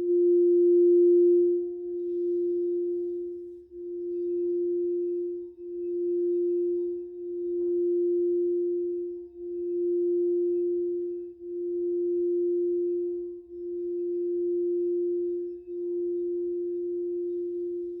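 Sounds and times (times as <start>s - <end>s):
crystal singing bowl tone: 0.0s - 18.0s.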